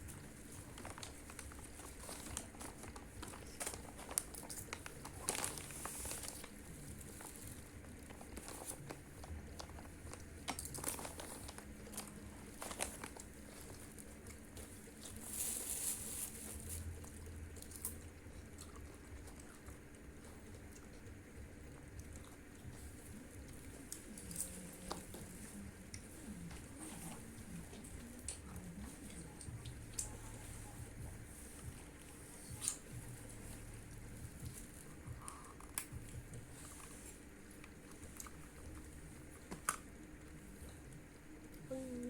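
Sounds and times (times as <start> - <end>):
food wrapping crinkling: 0.0 - 19.6.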